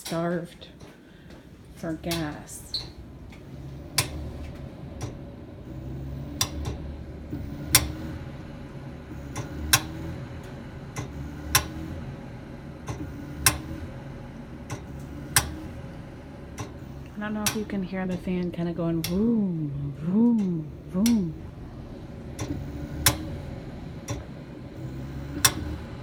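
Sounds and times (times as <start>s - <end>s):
gas furnace fan humming: 0.0s - 26.0s
gas pipes clicking: 0.0s - 26.0s.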